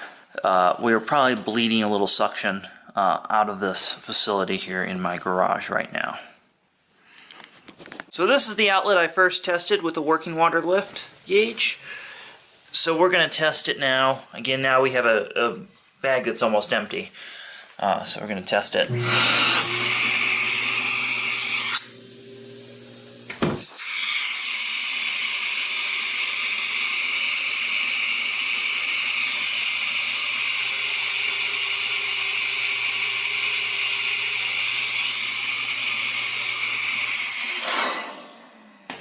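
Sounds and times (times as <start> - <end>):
vacuum suction hissing: 18.9 - 38.6.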